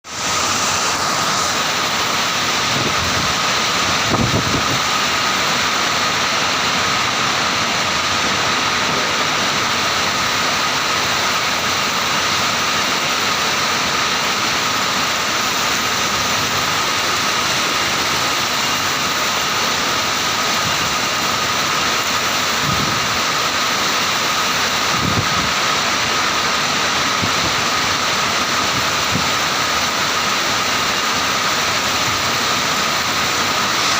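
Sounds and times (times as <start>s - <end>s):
heavy rain falling: 0.0s - 33.9s
low wind gusts rumbling: 2.7s - 4.9s.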